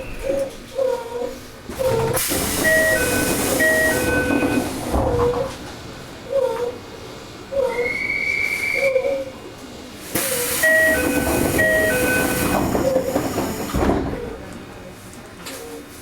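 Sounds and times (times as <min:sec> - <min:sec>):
steady whistle-like tone: 0:07.7 - 0:09.2
compressed air hiss: 0:10.1 - 0:10.8.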